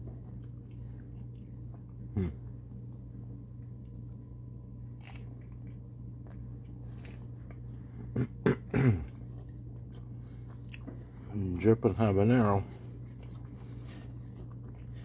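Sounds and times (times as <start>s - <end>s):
man chewing: 0.0s - 4.2s, 4.8s - 11.3s, 12.8s - 15.0s
man humming: 2.1s - 2.5s.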